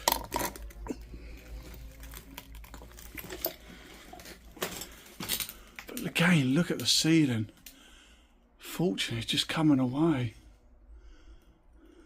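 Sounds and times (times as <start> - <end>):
small objects clicking and knocking: 0.0 - 6.1.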